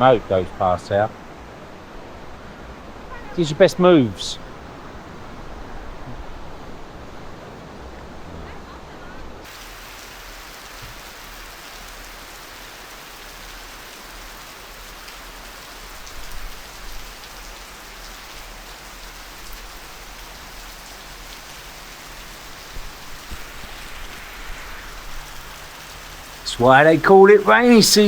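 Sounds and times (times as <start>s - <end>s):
heavy rain pouring: 0.0s - 28.0s
water splashes: 9.4s - 28.0s.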